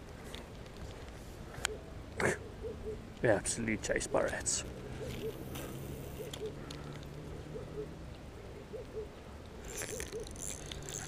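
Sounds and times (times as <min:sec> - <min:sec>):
bird hooting softly: 0:01.7 - 0:03.0, 0:04.8 - 0:09.2.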